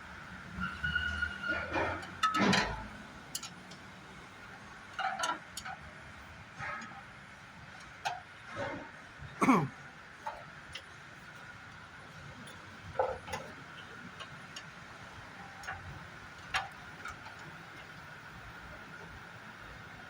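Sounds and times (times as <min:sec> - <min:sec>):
tools and parts clicking: 0:01.9 - 0:03.8.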